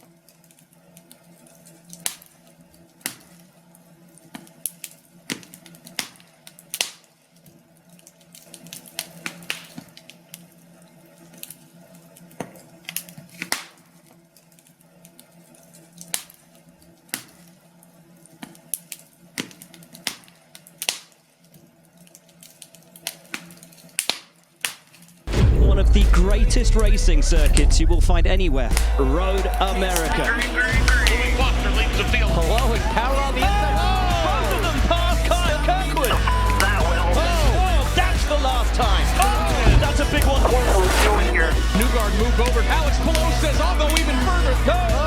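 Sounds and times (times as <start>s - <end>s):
wood fire crackling: 0.0s - 45.0s
faint low hum: 25.3s - 33.6s.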